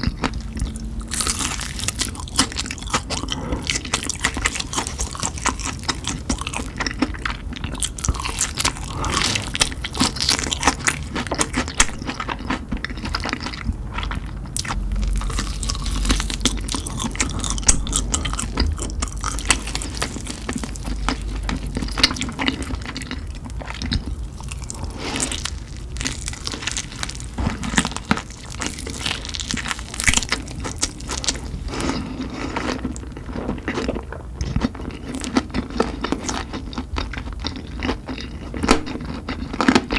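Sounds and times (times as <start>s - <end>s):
crunchy biting and chewing: 0.0s - 39.9s.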